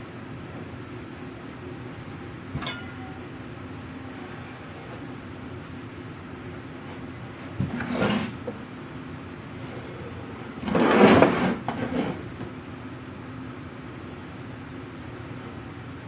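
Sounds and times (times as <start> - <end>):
steady low hum: 0.0 - 7.5
wooden drawer sliding: 7.6 - 8.5, 10.6 - 12.2.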